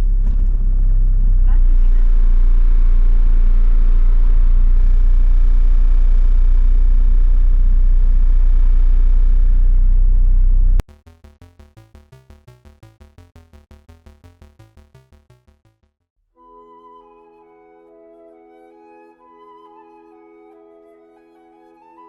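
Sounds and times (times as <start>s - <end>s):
diesel engine droning: 0.0s - 10.8s.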